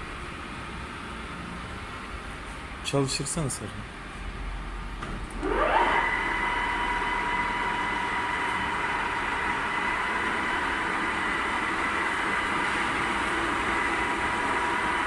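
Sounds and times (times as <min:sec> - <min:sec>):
lathe whining: 0:05.3 - 0:15.0.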